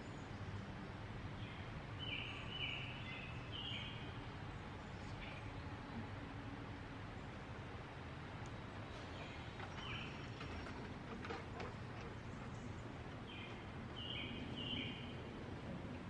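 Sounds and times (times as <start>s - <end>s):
birds calling: 8.5s - 15.4s.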